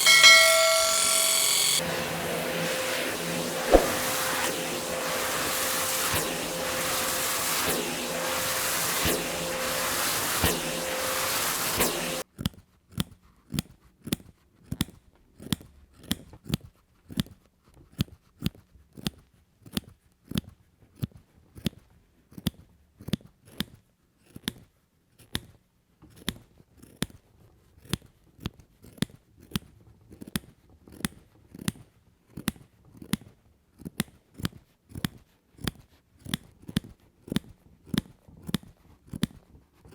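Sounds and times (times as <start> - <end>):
power tool humming: 0.0 - 12.2
scissors snipping yarn: 3.7 - 4.0, 12.4 - 27.2, 27.8 - 39.9.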